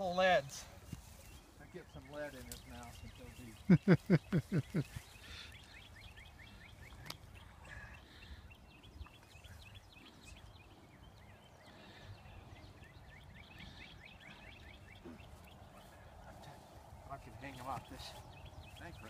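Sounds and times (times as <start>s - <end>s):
bird chirping: 0.0s - 19.0s
low wind rumble: 5.8s - 19.0s.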